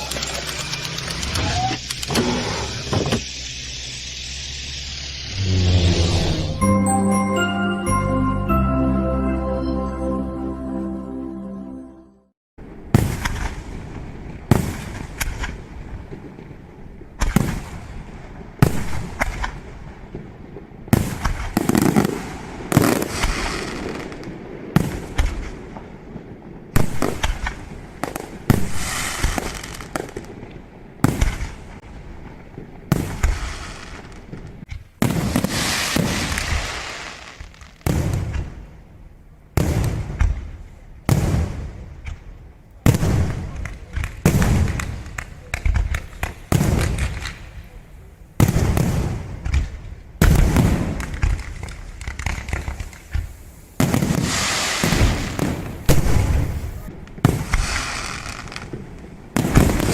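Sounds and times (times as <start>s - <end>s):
dense firework crackling: 3.2s - 6.4s, 13.0s - 38.8s, 42.8s - 59.9s.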